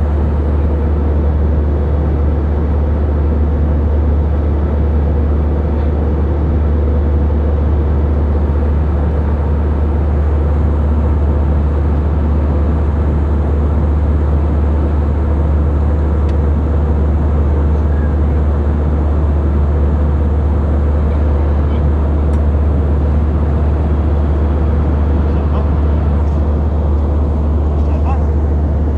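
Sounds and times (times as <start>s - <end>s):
jet engines droning: 0.0s - 28.9s
rushing air in cabin: 8.2s - 28.9s.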